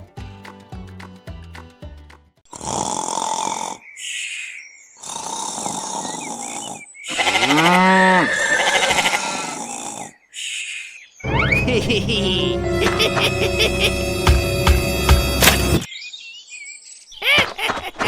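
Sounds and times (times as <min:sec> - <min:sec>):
bleat-like cry: 0:07.1 - 0:09.8.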